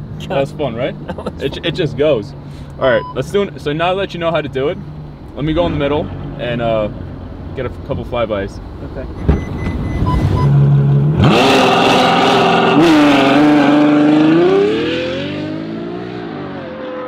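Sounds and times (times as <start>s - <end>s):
short beeps: 2.9s - 3.3s, 9.2s - 10.6s
car engine revving hard: 10.1s - 17.0s.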